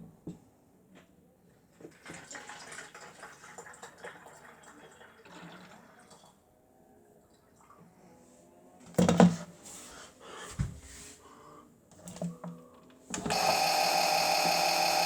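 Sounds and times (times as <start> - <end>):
toy washing machine whirring: 13.1 - 15.0.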